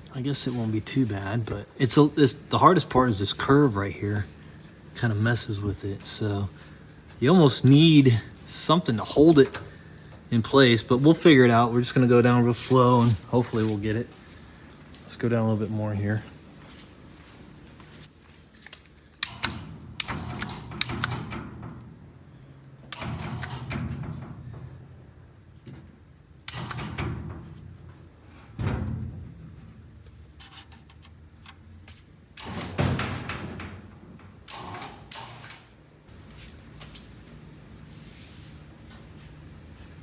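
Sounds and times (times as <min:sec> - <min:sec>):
low steady hum: 0:00.0 - 0:35.1
metal clunks and knocks: 0:26.6 - 0:29.9.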